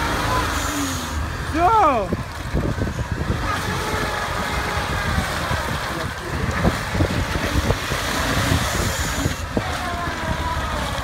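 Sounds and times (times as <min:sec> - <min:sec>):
off-road engine under load: 0:00.0 - 0:11.0
wind on microphone: 0:02.1 - 0:10.8.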